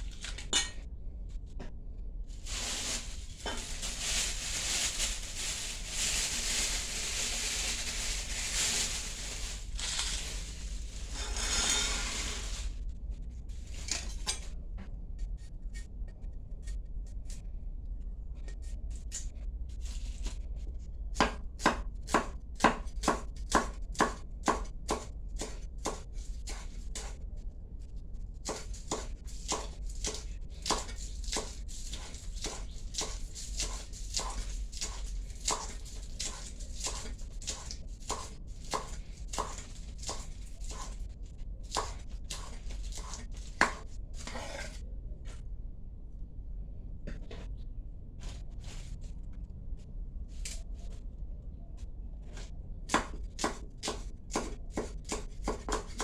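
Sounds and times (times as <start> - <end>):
knife chopping on cutting board: 21.2 - 27.2, 28.4 - 41.0, 41.7 - 44.8, 52.9 - 56.0.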